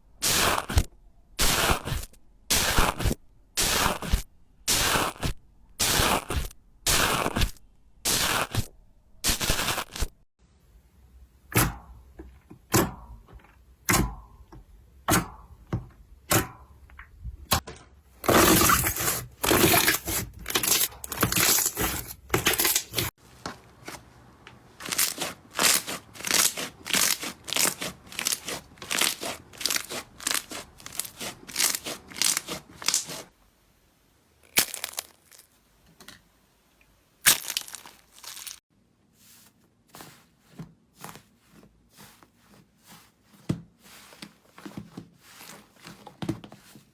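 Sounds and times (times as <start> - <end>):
slime crackling and popping: 34.4 - 35.5, 37.2 - 38.6.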